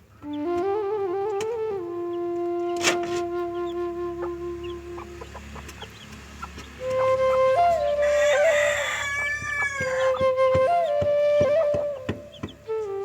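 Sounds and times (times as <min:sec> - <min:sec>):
flute music: 0:00.0 - 0:13.0
rooster crowing: 0:07.4 - 0:11.0.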